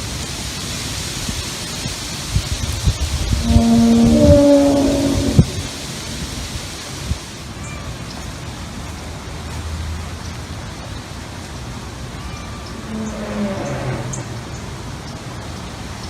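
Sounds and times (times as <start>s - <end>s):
outdoor background hiss: 0.0s - 16.0s
low rumble: 3.2s - 6.5s, 12.7s - 14.9s.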